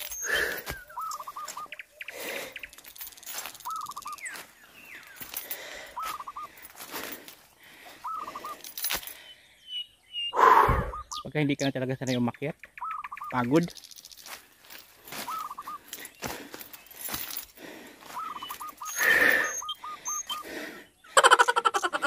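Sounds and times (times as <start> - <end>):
footsteps on a trail: 0.0 - 9.3, 13.6 - 20.8
bird calling: 0.0 - 22.0.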